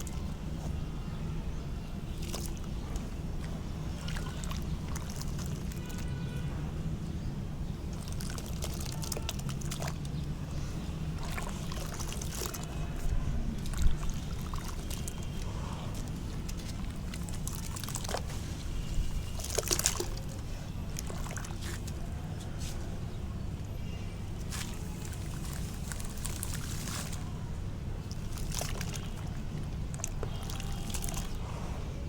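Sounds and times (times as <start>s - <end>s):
water sloshing and trickling: 0.0s - 32.0s.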